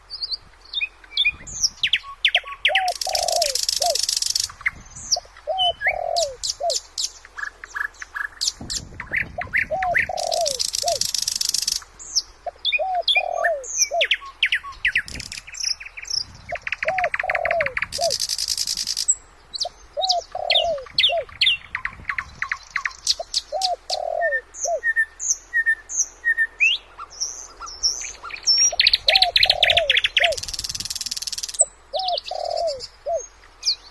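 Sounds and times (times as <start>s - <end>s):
birds chirping and trilling: 0.0s - 33.9s
low repeating bird phrase: 2.0s - 4.0s, 9.2s - 11.0s, 16.5s - 18.2s, 19.9s - 24.8s, 28.8s - 30.4s.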